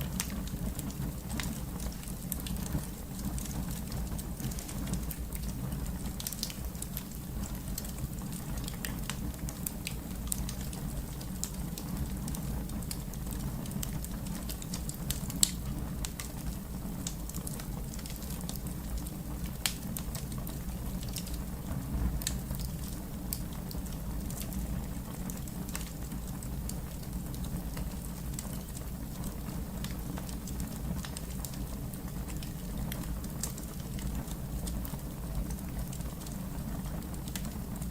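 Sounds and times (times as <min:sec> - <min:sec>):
wood fire crackling: 0:00.0 - 0:37.9.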